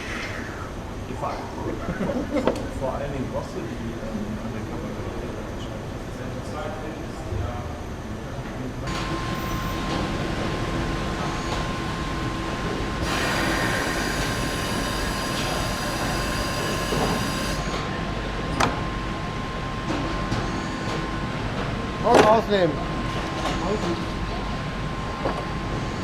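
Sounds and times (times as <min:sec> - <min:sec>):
hiss: 0:00.0 - 0:00.8, 0:13.0 - 0:17.6
machinery hum: 0:00.0 - 0:26.0.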